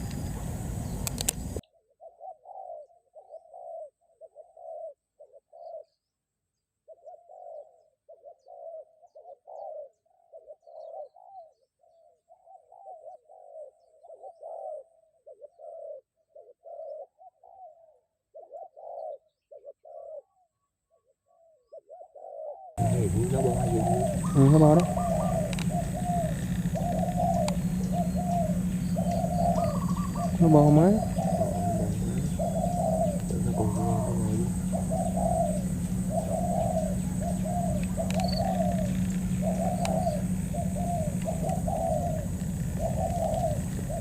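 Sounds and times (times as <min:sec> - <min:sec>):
doves cooing: 0:00.0 - 0:05.8, 0:21.9 - 0:44.0.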